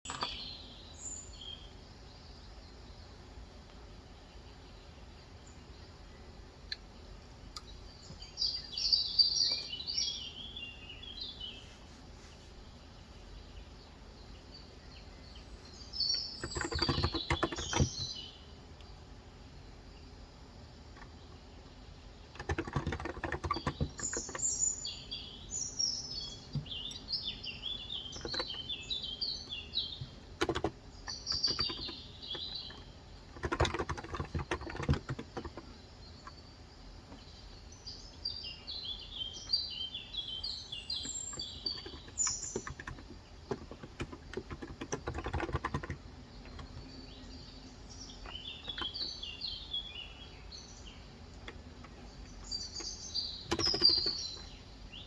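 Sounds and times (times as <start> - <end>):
birds chirping: 0.0 - 55.0
keyboard key clicks: 30.4 - 30.8.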